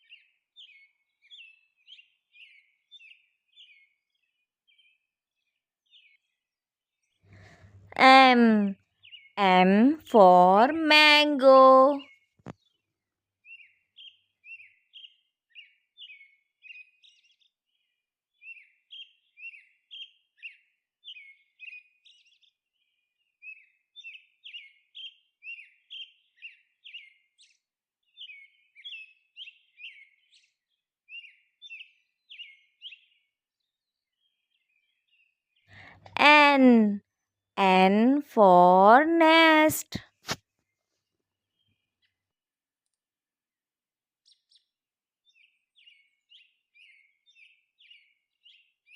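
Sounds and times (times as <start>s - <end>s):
faint birds chirping: 0.0s - 6.4s.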